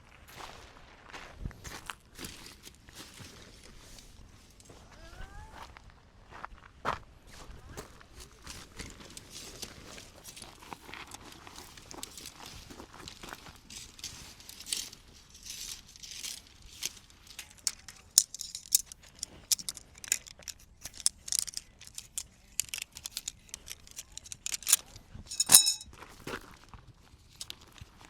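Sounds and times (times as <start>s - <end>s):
light rustling: 13.7s - 25.8s
small hard objects clicking: 13.7s - 25.8s
loud ringing clink: 25.3s - 25.8s.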